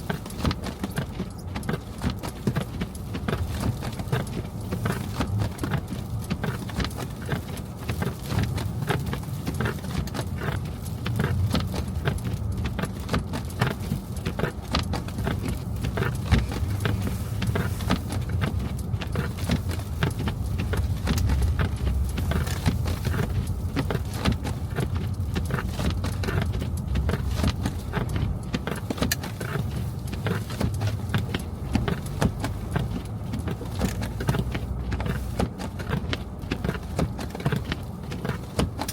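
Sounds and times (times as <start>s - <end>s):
car engine and tyres rumbling: 0.0s - 38.9s
small clicks and knocks: 0.0s - 38.9s.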